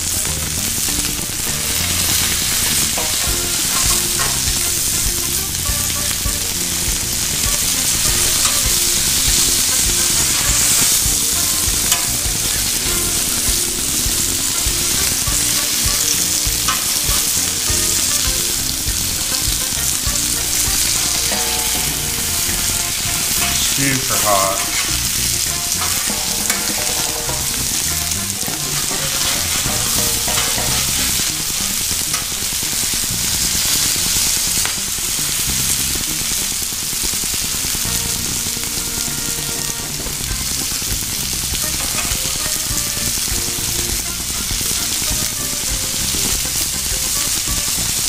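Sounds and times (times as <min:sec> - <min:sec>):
food sizzling on griddle: 0:00.0 - 0:48.0
metal spatula scraping steel: 0:01.6 - 0:06.7, 0:19.8 - 0:32.4.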